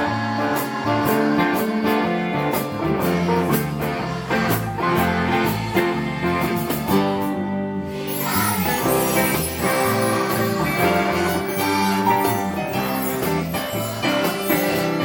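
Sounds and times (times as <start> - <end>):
bass line: 0.0 - 15.0
guitar playing: 0.0 - 15.0.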